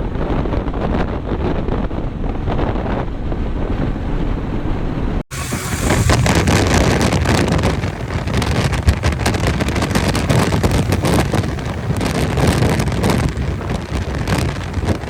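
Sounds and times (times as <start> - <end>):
wind buffeting microphone: 0.0 - 15.0
vehicle rumble: 4.0 - 15.0.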